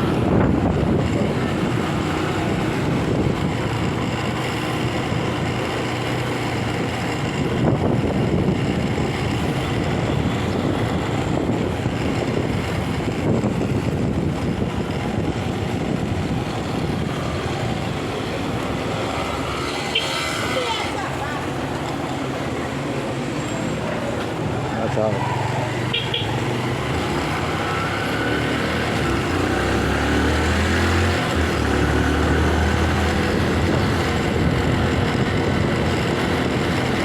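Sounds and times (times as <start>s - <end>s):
wind on microphone: 0.0s - 4.2s, 6.6s - 19.0s, 26.5s - 37.0s
motorcycle engine running: 0.0s - 37.0s.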